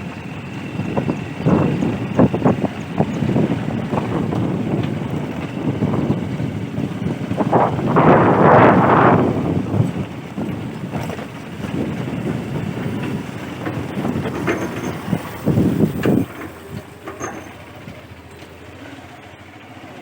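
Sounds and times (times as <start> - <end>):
wind buffeting microphone: 0.0 - 18.1
vehicle running: 0.0 - 20.0.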